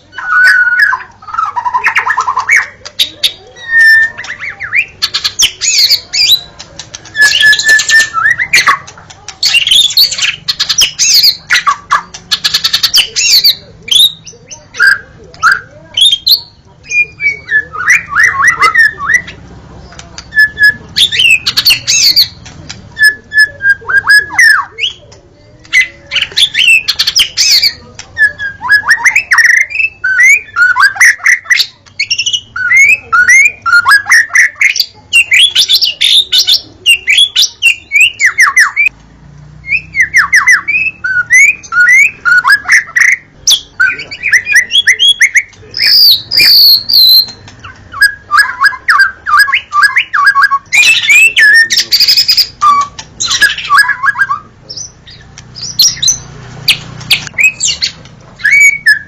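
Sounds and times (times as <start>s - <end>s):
songbird singing whistled phrases: 0.1s - 19.4s, 20.2s - 25.1s, 25.7s - 38.9s, 39.6s - 59.0s.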